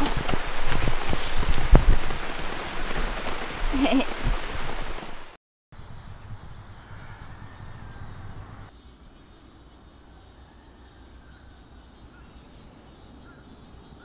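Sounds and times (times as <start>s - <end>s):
heavy rain hissing: 0.0s - 5.4s.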